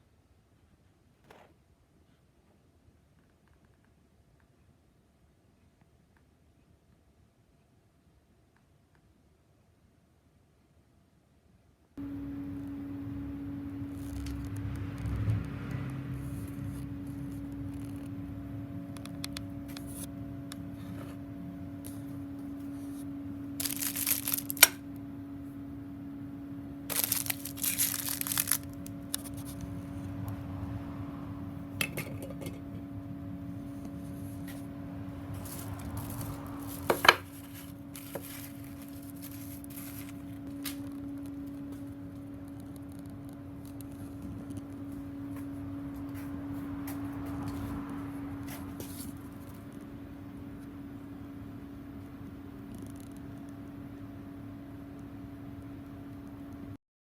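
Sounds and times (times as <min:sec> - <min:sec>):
steady hum: 0:12.0 - 0:56.8
small parts scraping and rustling: 0:21.8 - 0:24.8, 0:26.9 - 0:30.0, 0:35.3 - 0:41.8.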